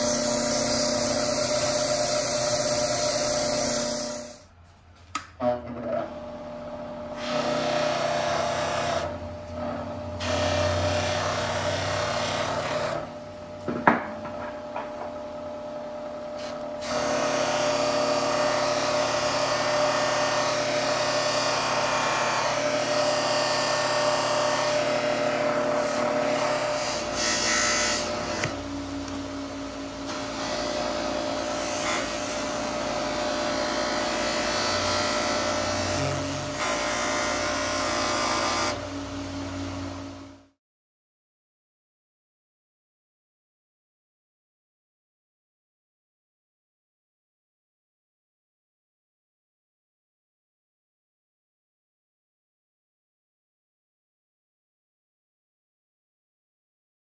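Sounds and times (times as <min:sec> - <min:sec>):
bench buffer motor hum: 0:00.0 - 0:04.5, 0:05.4 - 0:40.5.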